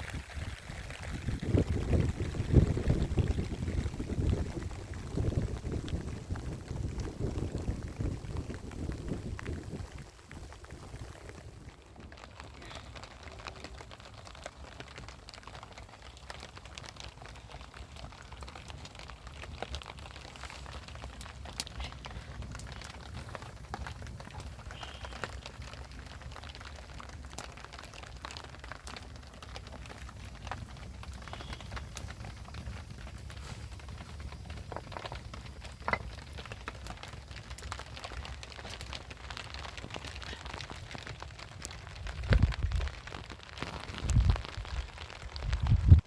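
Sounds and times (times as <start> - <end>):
rain falling: 0.0 - 46.0
raindrops ticking: 0.0 - 46.0.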